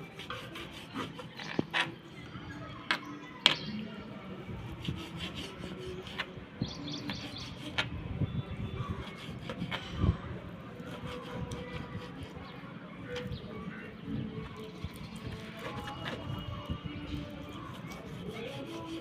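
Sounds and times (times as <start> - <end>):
knife cutting raw chicken: 14.6 - 16.3.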